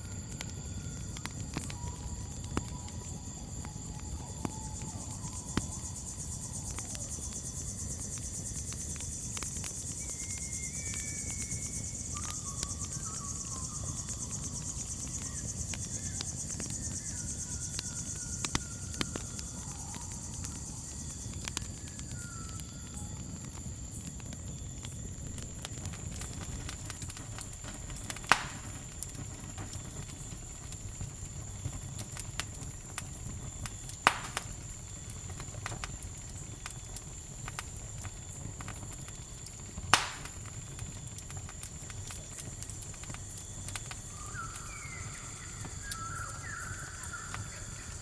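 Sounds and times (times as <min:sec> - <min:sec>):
campfire crackling and popping: 0:00.0 - 0:48.0
crickets chirping: 0:00.0 - 0:48.0
short whistled calls: 0:10.0 - 0:20.5, 0:44.0 - 0:48.0.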